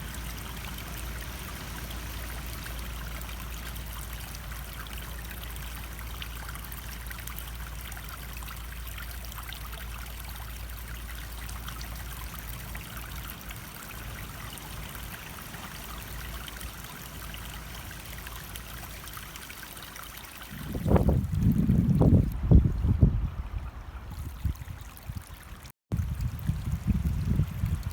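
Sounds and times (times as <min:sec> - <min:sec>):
low uneven rumble: 0:00.0 - 0:19.1
stream water trickling: 0:00.0 - 0:27.9.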